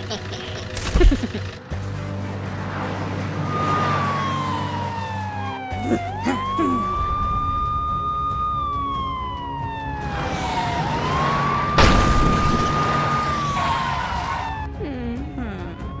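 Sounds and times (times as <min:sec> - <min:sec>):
emergency siren wailing: 0:03.4 - 0:14.7, 0:15.4 - 0:16.0.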